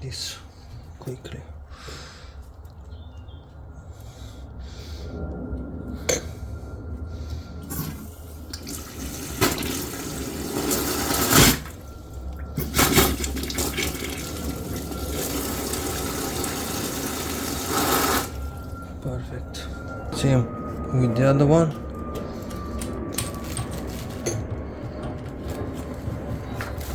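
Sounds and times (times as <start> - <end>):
water rushing through a pipe: 7.6 - 19.1.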